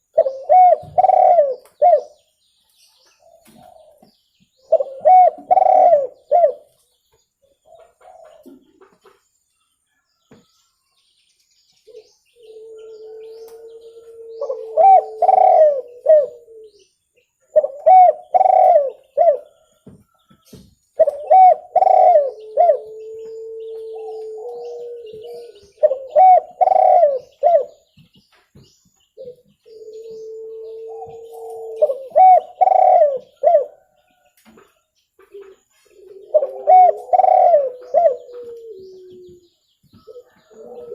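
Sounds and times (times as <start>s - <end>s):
dove cooing: 0.0s - 2.2s, 4.7s - 6.7s, 7.7s - 8.7s, 11.9s - 16.8s, 17.5s - 19.6s, 21.0s - 27.8s, 29.2s - 34.0s, 35.3s - 40.9s.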